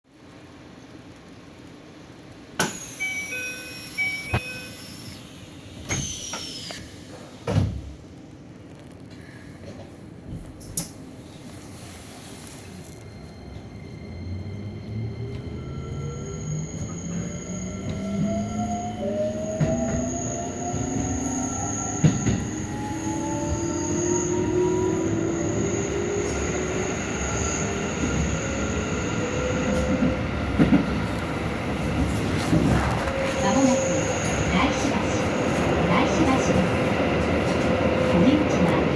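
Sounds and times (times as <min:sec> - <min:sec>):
train low background hum: 0:00.1 - 0:38.9
train doors hissing shut: 0:02.6 - 0:04.8, 0:05.7 - 0:07.9
wheels rumbling on rails: 0:08.0 - 0:38.9.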